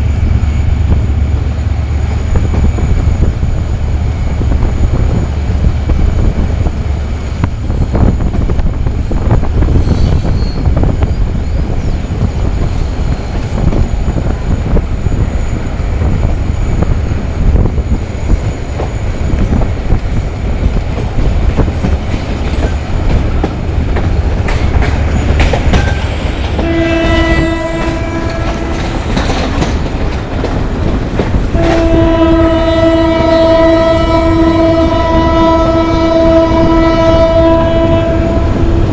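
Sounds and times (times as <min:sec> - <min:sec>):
train rumbling: 0:00.0 - 0:38.9
wheels clicking over rail joints: 0:20.8 - 0:26.7, 0:27.7 - 0:31.9
locomotive horn blasts: 0:26.6 - 0:29.0, 0:31.5 - 0:38.9.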